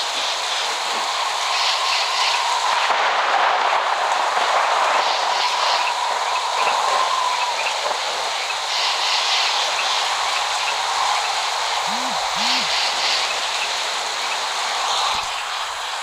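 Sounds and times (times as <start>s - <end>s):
steady rain hiss: 0.0s - 16.0s
faint high chirps: 11.8s - 12.8s.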